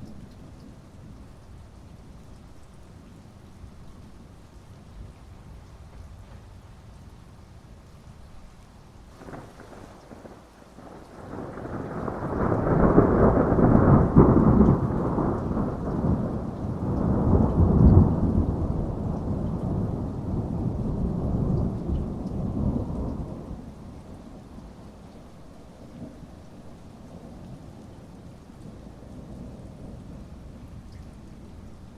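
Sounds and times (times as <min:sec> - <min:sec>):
heavy rain: 0:00.0 - 0:31.9
thunder rolling: 0:09.2 - 0:23.7.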